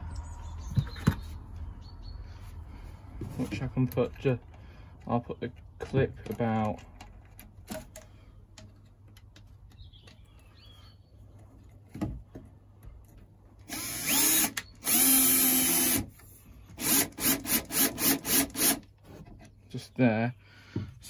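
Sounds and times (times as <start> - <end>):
power drill running: 13.6 - 16.1, 16.8 - 18.8.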